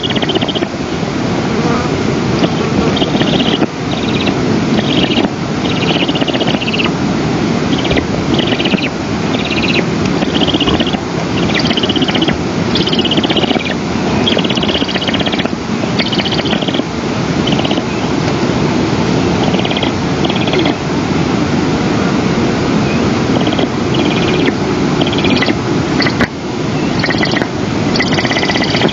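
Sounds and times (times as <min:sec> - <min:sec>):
bird chattering calls: 0:00.0 - 0:00.8, 0:02.4 - 0:06.9, 0:07.7 - 0:18.1, 0:19.4 - 0:20.8, 0:23.3 - 0:28.9.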